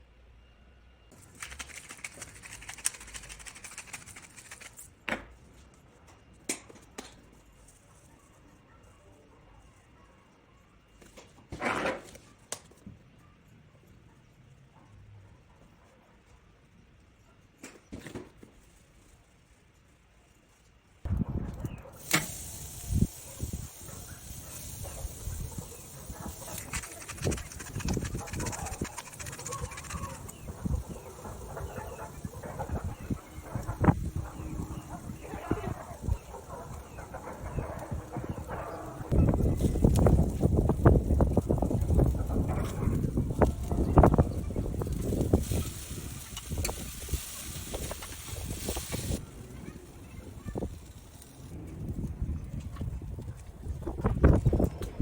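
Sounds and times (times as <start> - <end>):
steaks crackling on a grill: 22.0 - 52.6.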